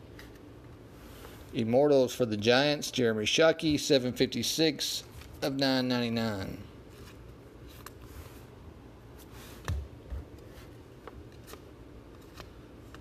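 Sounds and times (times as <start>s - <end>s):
trading cards clicking and rustling: 11.0s - 13.0s.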